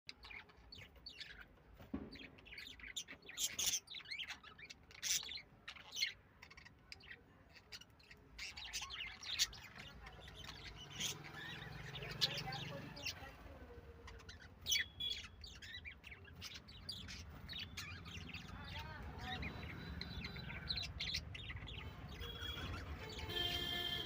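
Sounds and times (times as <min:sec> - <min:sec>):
lovebirds chirping: 0:00.1 - 0:24.0.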